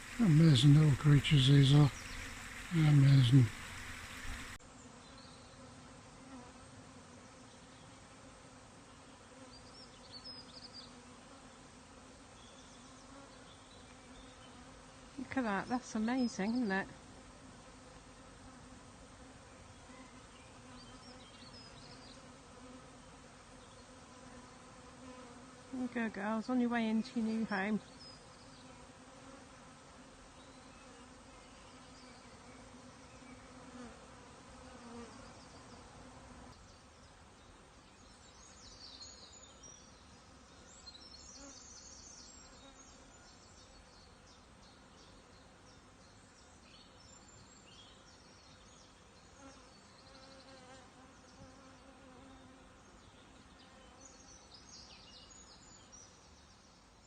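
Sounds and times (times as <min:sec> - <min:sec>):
bee swarm buzzing: 0:00.0 - 0:04.6, 0:14.0 - 0:36.5.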